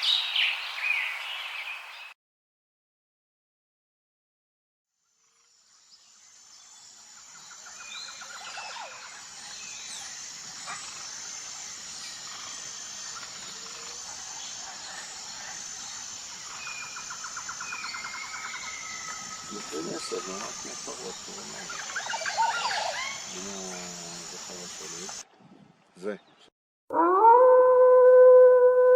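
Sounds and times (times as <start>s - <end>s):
insect drone pulsing: 5.0s - 25.2s
birds chirping and whistling: 15.9s - 23.7s.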